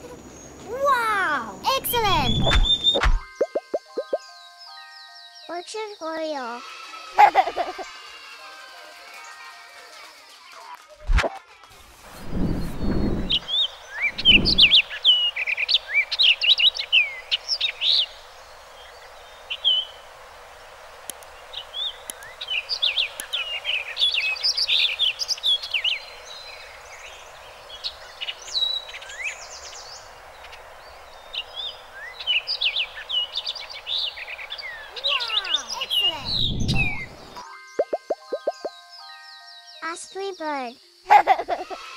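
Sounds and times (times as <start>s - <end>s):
steady background hiss: 0.0s - 3.0s, 11.8s - 37.5s
bird singing chirps and whistles: 1.7s - 6.0s, 12.4s - 18.2s, 31.4s - 40.4s.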